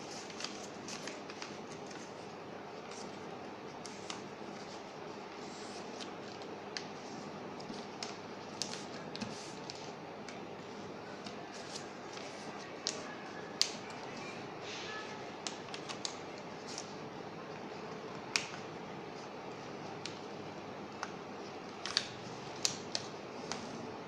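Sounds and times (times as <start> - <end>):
paper crinkling and creasing: 0.0 - 10.0, 10.6 - 14.3
paper snap: 12.8 - 13.8, 18.3 - 18.6, 21.8 - 23.6.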